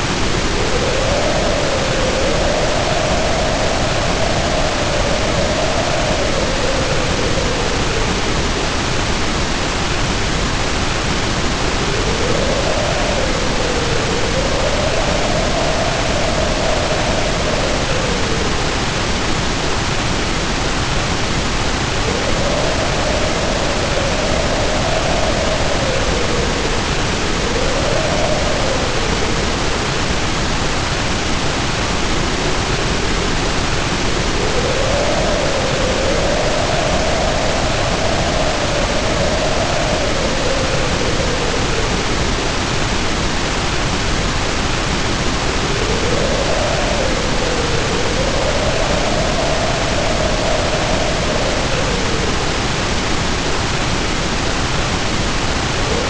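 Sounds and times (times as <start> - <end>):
heavy rain pouring: 0.0 - 56.0
wind howling: 0.0 - 56.0.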